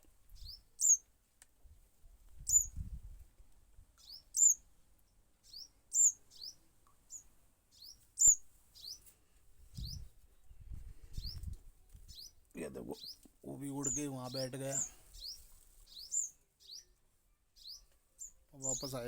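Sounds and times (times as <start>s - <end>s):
fledgling bird chirping: 0.3s - 1.0s, 2.4s - 2.8s, 4.0s - 4.7s, 5.4s - 9.1s, 9.7s - 10.1s, 11.1s - 11.5s, 12.1s - 19.0s.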